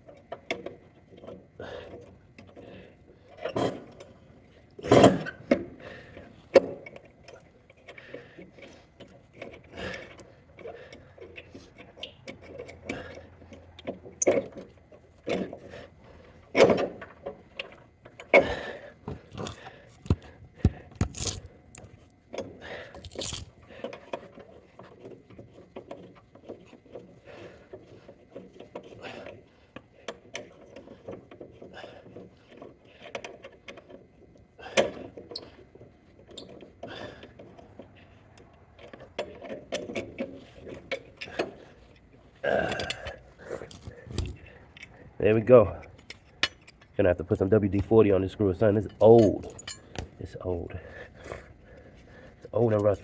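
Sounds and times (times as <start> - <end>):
hand tools clinking on metal: 45.8 - 48.0, 48.7 - 50.8.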